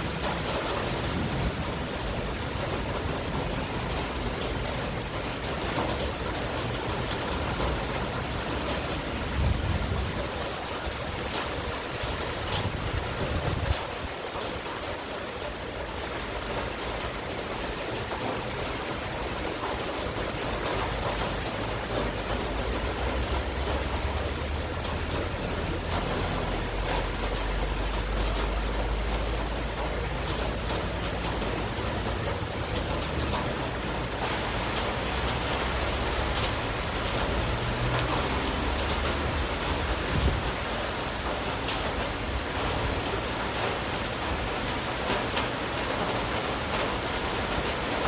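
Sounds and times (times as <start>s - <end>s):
rain falling: 0.0s - 48.0s.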